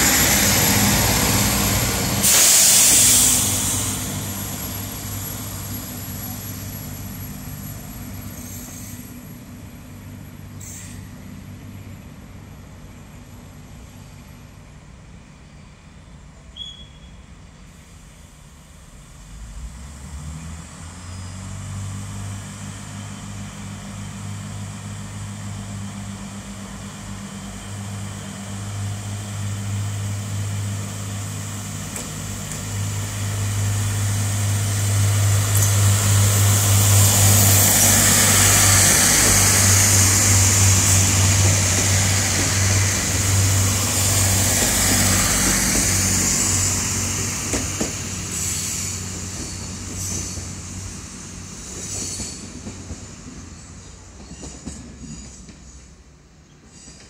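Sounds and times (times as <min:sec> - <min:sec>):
train engine drone: 0:00.0 - 0:57.0
wheel and rail noise: 0:21.0 - 0:57.0.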